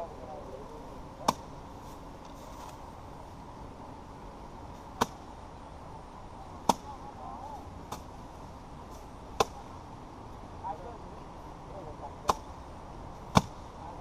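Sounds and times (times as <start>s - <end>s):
sharp crisp strikes of rice harvesting: 1.2s - 2.8s, 4.7s - 5.3s, 6.4s - 7.2s, 7.8s - 9.7s, 12.2s - 13.7s.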